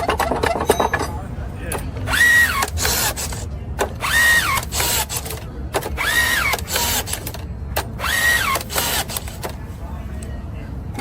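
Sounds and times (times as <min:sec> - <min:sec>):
machine motor whining: 0:02.1 - 0:07.4, 0:08.0 - 0:09.6.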